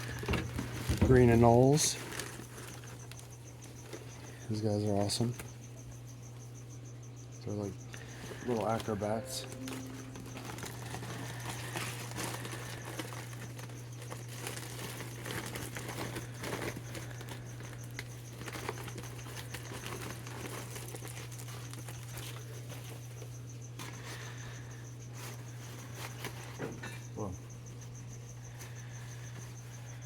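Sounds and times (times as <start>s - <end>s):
plastic bags rustling: 0.0s - 3.2s, 8.5s - 23.0s.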